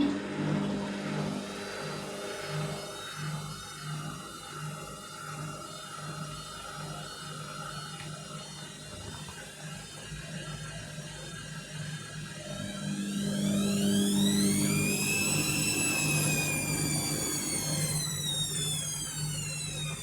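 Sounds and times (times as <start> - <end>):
washing machine motor pulsing hum: 0.0 - 3.2, 11.6 - 20.0.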